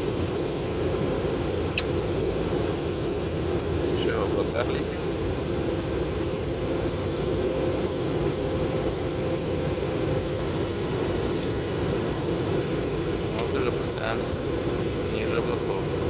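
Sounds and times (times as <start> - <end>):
airliner engines droning: 0.0 - 16.0
steady hum: 0.0 - 16.0.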